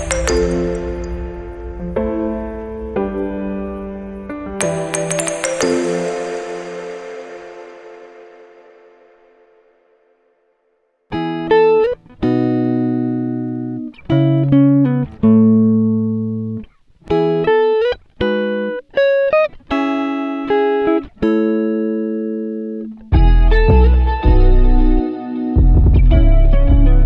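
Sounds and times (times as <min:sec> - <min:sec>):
plucked guitar melody: 0:00.0 - 0:10.0, 0:11.1 - 0:27.0
deep bass: 0:23.2 - 0:25.0, 0:25.6 - 0:27.0.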